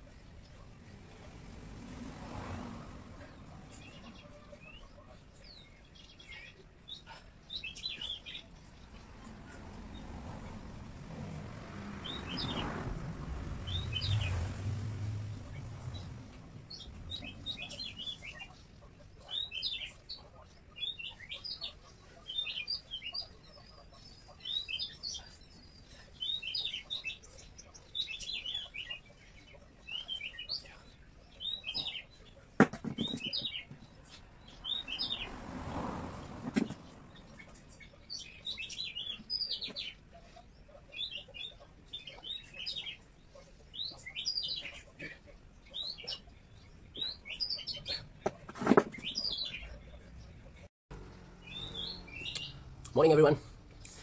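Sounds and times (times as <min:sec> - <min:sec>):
small bird chirping: 0:15.4 - 0:35.3, 0:36.5 - 0:50.4, 0:51.4 - 0:53.2.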